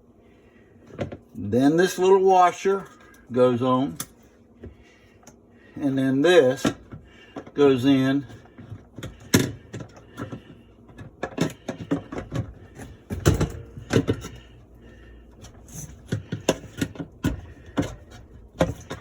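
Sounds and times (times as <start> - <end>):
plastic parts clicking and knocking: 8.4 - 14.4, 15.4 - 19.0.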